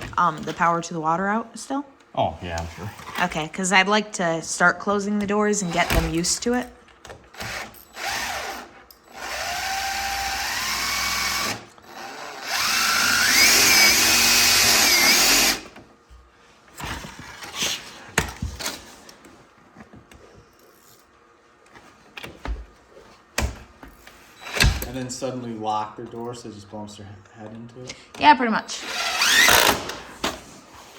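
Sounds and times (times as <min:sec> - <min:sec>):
power drill motor whine: 0:07.4 - 0:15.8, 0:24.4 - 0:24.9, 0:28.8 - 0:30.0.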